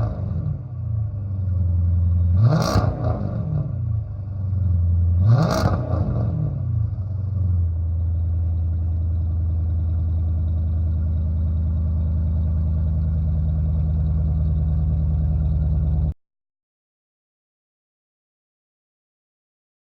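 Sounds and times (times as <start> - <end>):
deep engine idle: 0.0 - 2.5, 3.5 - 5.3, 6.6 - 16.2
car engine revving: 0.0 - 9.9.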